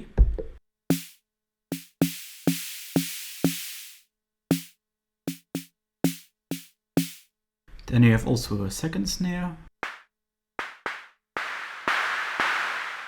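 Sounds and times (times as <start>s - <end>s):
drum machine snare hits: 0.9s - 4.7s, 5.3s - 7.3s, 9.8s - 13.0s.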